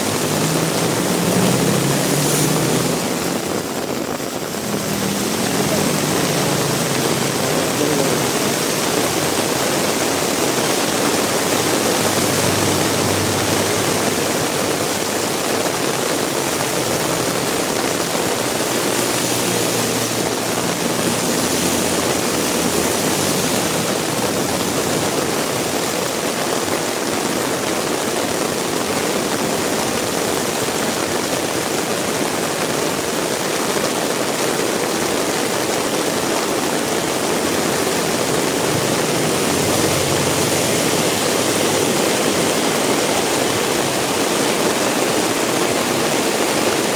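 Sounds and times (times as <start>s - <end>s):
vehicle engine humming low: 0.0s - 26.2s
heavy rain falling: 0.0s - 46.9s.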